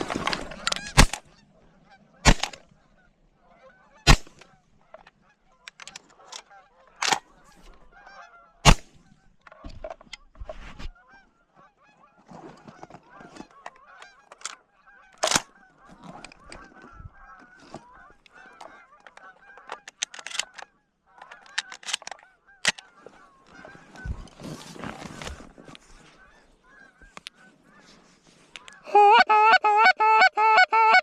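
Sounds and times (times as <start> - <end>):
geese honking: 0.0 - 10.3, 10.9 - 24.4, 25.0 - 31.0.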